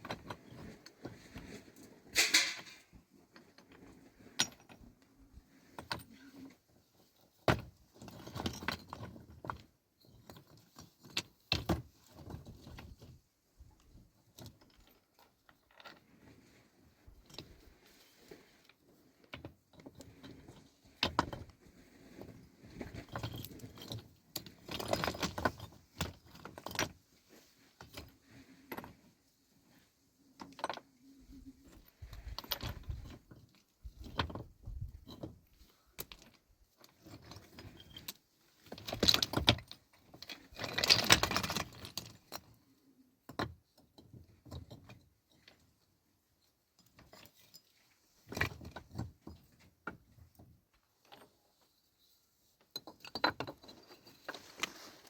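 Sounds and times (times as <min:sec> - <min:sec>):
hard objects clinking and rattling: 0:02.2 - 0:02.9.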